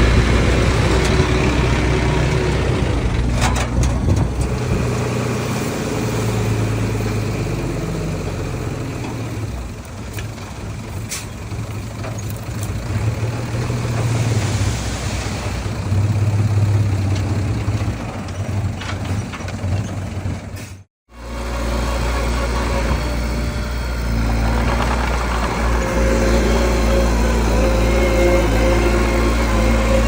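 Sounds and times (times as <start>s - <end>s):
heavy diesel engine running: 0.0s - 30.0s
lower-pitched engine sound: 21.1s - 30.0s.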